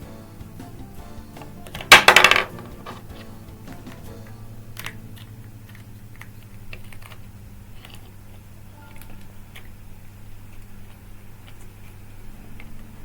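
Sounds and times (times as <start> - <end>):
plastic pieces clattering: 1.7 - 3.1.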